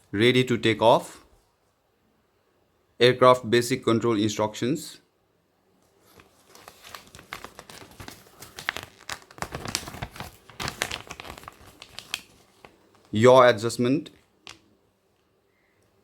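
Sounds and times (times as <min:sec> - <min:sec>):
paper rustling and crinkling: 0:05.9 - 0:13.2.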